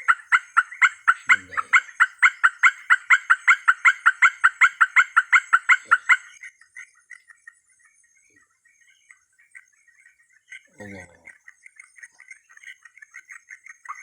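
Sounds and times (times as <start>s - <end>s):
animal call sharp repeated notes: 0.0s - 6.1s.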